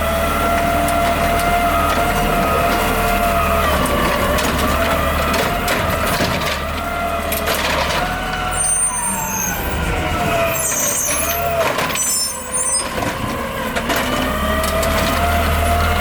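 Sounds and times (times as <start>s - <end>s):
garbage truck engine whine: 0.0s - 16.0s
short high squeals: 8.5s - 12.9s.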